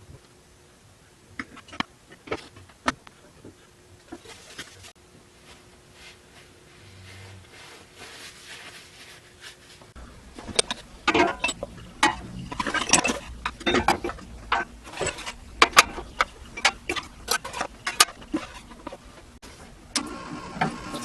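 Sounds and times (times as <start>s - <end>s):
faint steady hum: 0.0s - 21.0s
hard objects clinking: 10.4s - 19.2s.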